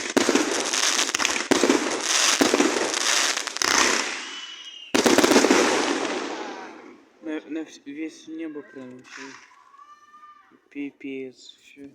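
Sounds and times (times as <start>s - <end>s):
fireworks bangs and crackling: 0.0s - 7.2s
firework whistle: 3.1s - 5.4s.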